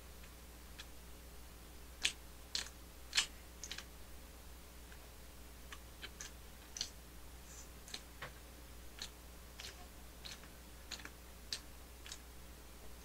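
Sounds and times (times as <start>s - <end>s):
man chewing with wet mouth clicks: 2.0s - 3.9s, 5.7s - 7.0s, 7.8s - 8.1s, 8.9s - 12.2s.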